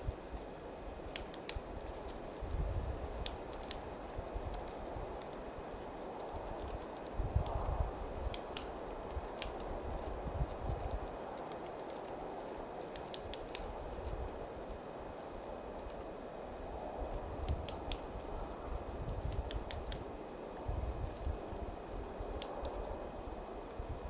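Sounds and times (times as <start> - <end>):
low wind rumble: 0.0 - 24.0
sharp ticks: 8.3 - 9.7, 11.4 - 14.2
small birds chirping: 11.6 - 15.2.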